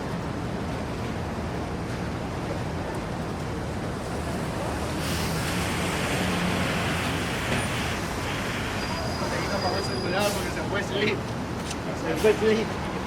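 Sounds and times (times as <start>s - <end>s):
tyres on wet road: 0.0s - 13.0s
rain hissing: 4.0s - 9.7s.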